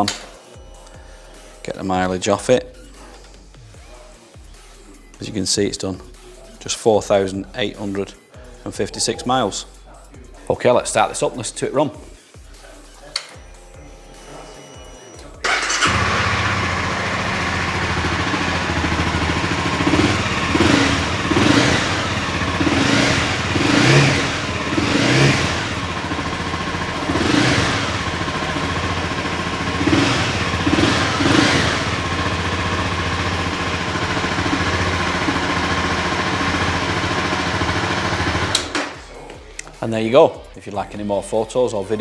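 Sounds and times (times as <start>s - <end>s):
motorcycle engine idling and revving: 15.4s - 39.0s.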